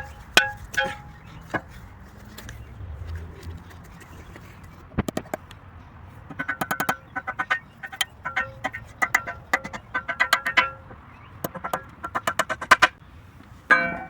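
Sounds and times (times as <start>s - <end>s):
hammer tapping on metal shovel: 0.0s - 1.6s, 6.3s - 13.0s.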